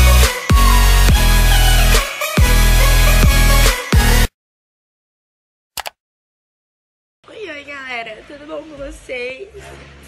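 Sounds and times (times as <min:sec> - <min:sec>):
electronic dance music: 0:00.0 - 0:04.3.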